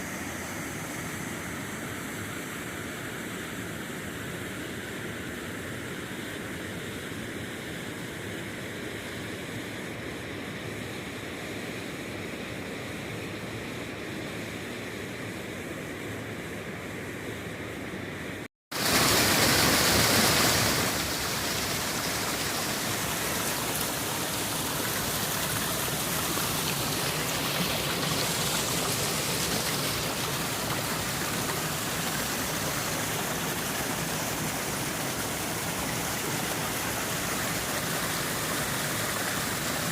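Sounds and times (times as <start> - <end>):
rushing creek water: 18.7 - 39.9.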